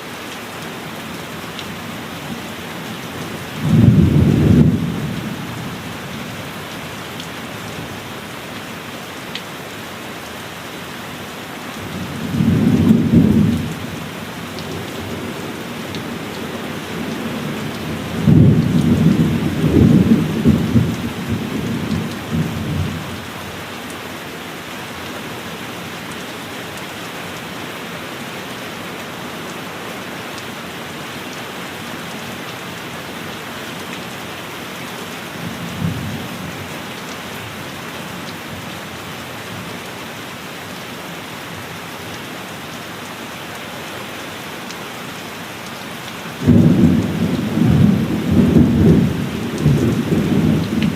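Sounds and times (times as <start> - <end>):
heavy rain: 0.0 - 50.9
thunder clap and rumble: 18.1 - 22.9, 46.4 - 50.9.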